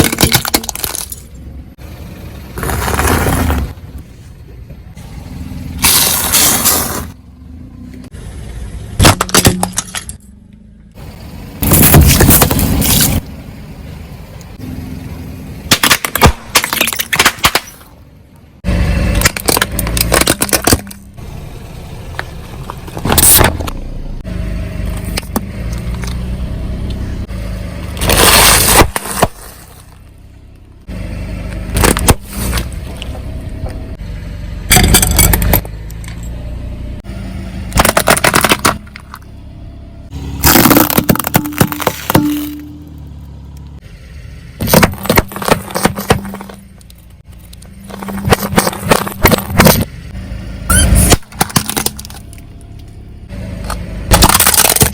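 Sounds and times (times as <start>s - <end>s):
tyres crushing objects: 0.0s - 1.4s, 2.6s - 4.1s, 5.7s - 7.2s, 8.9s - 10.3s, 11.6s - 13.3s, 15.6s - 18.0s, 19.1s - 21.2s, 27.9s - 30.1s, 31.5s - 33.1s, 34.7s - 35.7s, 37.6s - 39.3s, 40.1s - 43.0s, 44.6s - 49.9s, 50.7s - 53.0s, 53.6s - 54.9s
car rumbling: 0.0s - 54.9s.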